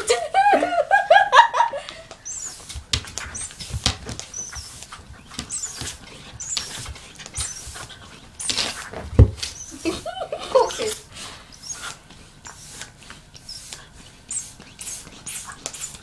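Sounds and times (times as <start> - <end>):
dog high squeaks: 2.2 - 10.0.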